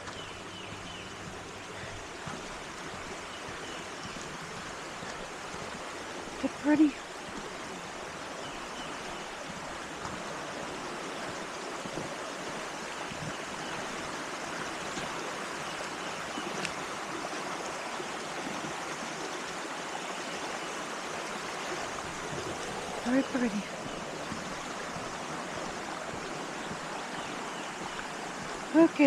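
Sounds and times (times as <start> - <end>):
flooded river rushing: 0.0 - 29.0.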